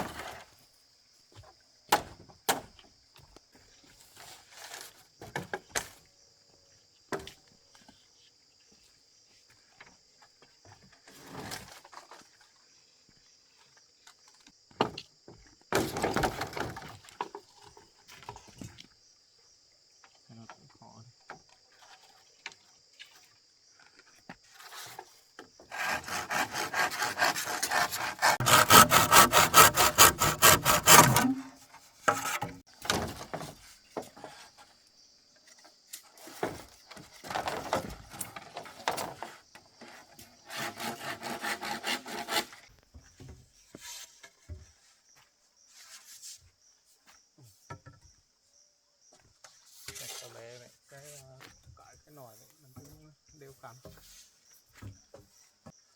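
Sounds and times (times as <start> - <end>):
hand saw cutting bamboo: 25.7 - 32.6, 39.2 - 42.7.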